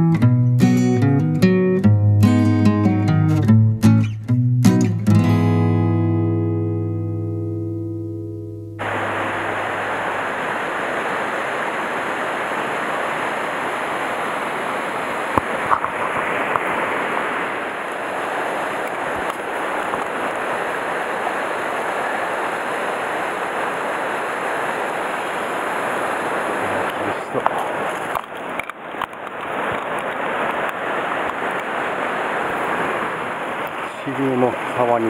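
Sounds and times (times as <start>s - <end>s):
water rushing over rocks: 8.8s - 35.0s.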